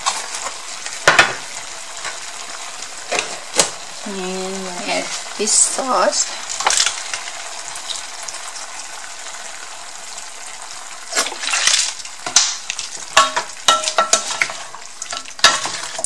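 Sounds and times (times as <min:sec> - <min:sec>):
bones sizzling in a pan: 0:00.0 - 0:16.0
spatula knocking on metal pan: 0:13.2 - 0:14.5
spatula scraping a pan: 0:13.7 - 0:16.0.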